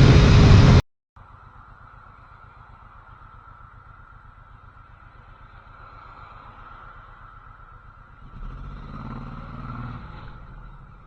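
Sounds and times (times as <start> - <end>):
motorcycle engine pulling away: 8.2 - 11.0.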